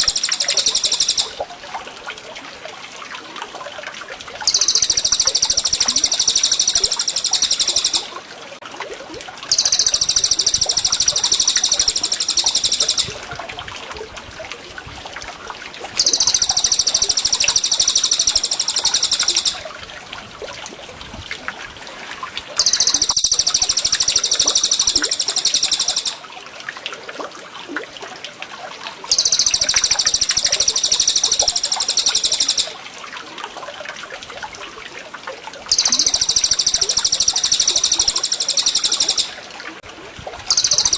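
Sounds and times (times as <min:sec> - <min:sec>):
songbird chirping: 0:00.0 - 0:01.4, 0:04.5 - 0:08.1, 0:09.5 - 0:13.2, 0:16.0 - 0:19.6, 0:22.6 - 0:26.2, 0:29.1 - 0:32.8, 0:35.7 - 0:39.4, 0:40.5 - 0:40.9
running water trickling: 0:00.0 - 0:40.9.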